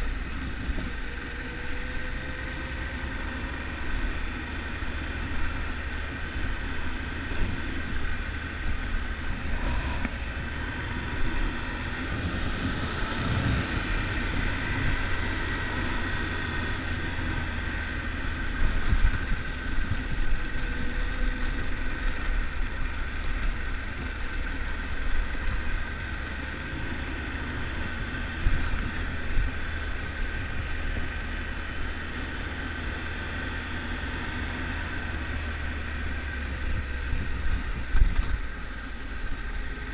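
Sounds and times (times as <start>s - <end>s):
motorcycle engine running: 0.0s - 39.9s
wind noise on microphone: 7.3s - 15.9s, 36.3s - 38.6s.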